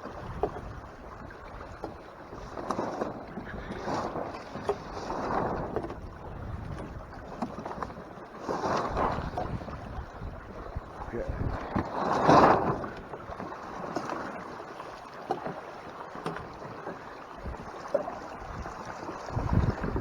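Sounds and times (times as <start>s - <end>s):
wind buffeting microphone: 0.0s - 7.8s, 8.6s - 13.4s, 17.3s - 20.0s
water splashing against hull: 0.0s - 20.0s.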